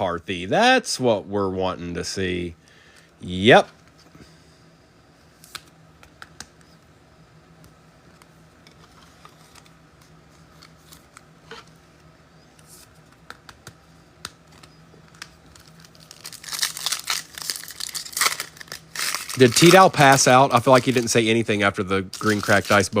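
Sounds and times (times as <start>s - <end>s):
trading cards clicking and tapping: 13.1s - 15.4s
card pack wrapper tearing: 15.1s - 23.0s.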